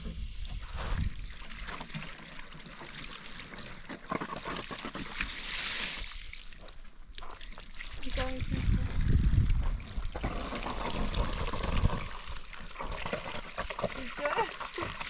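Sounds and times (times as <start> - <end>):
water trickling and splashing: 0.0 - 15.0
rush of water: 7.5 - 15.0.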